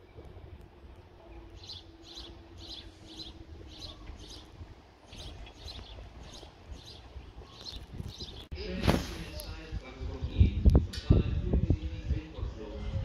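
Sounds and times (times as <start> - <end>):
small bird chirping: 5.1 - 8.5.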